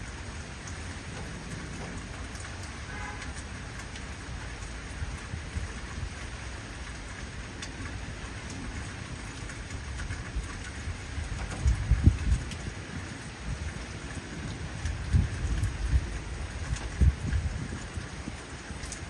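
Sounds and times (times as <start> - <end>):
heavy rain: 0.0 - 19.0
low thunder rumbling: 7.7 - 19.0.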